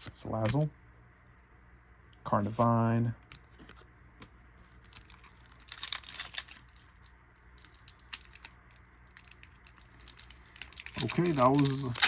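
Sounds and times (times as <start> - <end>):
trading cards clicking and rustling: 4.7 - 12.0.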